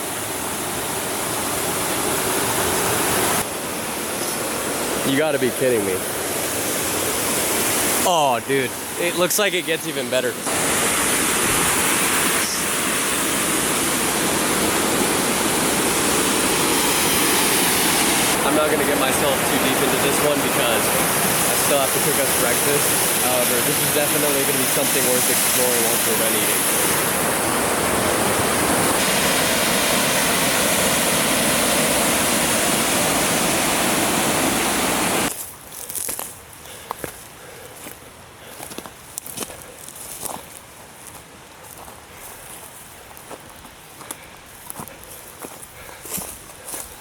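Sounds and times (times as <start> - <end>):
waterfall rushing over rocks: 0.0 - 35.3.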